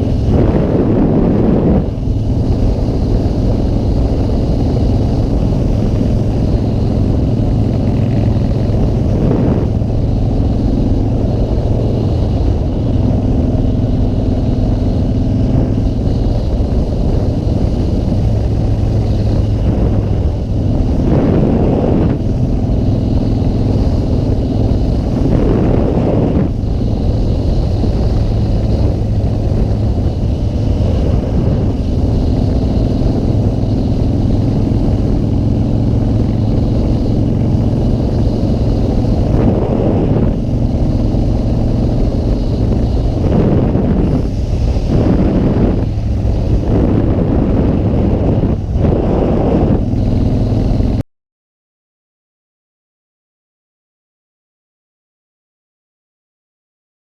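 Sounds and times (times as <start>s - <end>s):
motorcycle engine cruising: 0.0s - 51.0s
wind rushing: 0.0s - 51.0s
loud whooshes: 35.0s - 51.0s.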